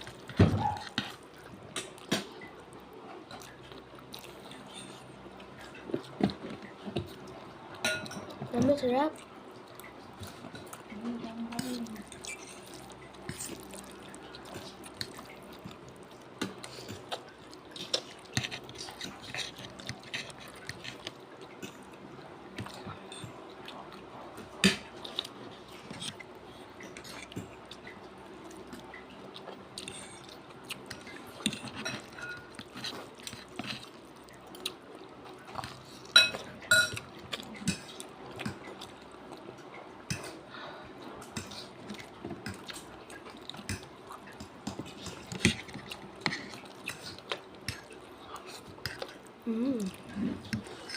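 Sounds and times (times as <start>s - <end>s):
wet chewing: 0.0s - 8.4s, 9.1s - 50.9s
cutlery clinking on a plate: 31.7s - 32.5s, 36.1s - 37.0s.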